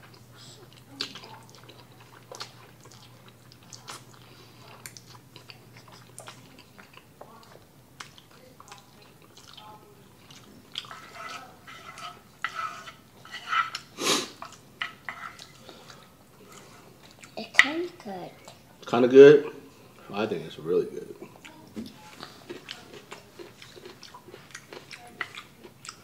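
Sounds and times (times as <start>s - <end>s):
slurping and chewing noodles: 0.0s - 17.4s, 22.2s - 26.0s.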